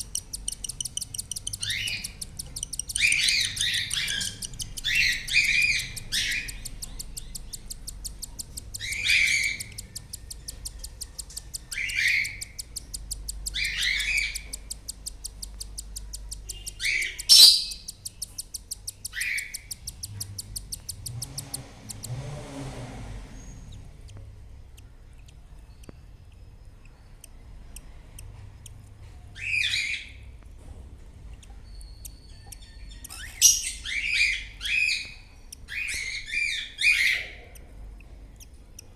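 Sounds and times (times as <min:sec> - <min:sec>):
chicks chirping calls: 0:00.0 - 0:22.2, 0:31.3 - 0:38.9
fast ticking chatter: 0:00.0 - 0:22.2, 0:23.8 - 0:30.4, 0:31.2 - 0:38.9.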